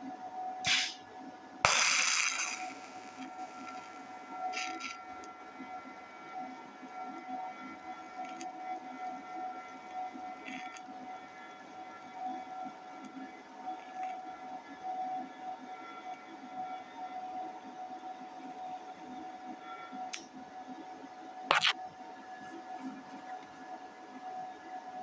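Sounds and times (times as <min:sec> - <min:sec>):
welding arc buzzing: 0:01.7 - 0:04.0, 0:21.5 - 0:21.7.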